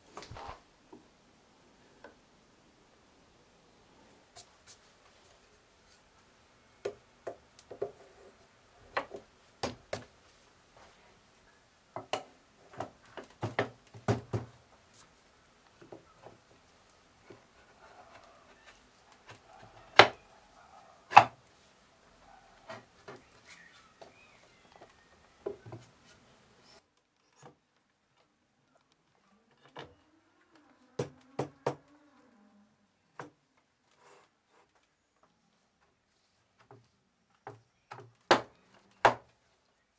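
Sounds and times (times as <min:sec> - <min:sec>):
wood knocking on wood: 0:12.0 - 0:14.6, 0:19.3 - 0:20.2.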